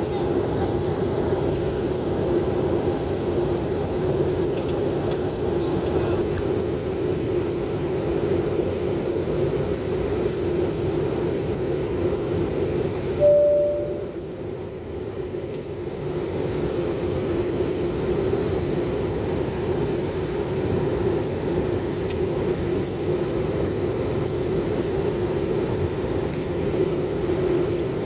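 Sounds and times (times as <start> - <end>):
airliner engine drone in cabin: 0.0 - 28.0
electronic tone: 13.2 - 14.2.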